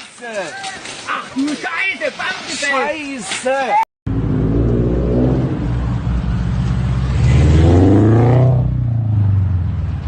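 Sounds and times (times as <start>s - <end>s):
car engine accelerating: 4.1s - 10.0s.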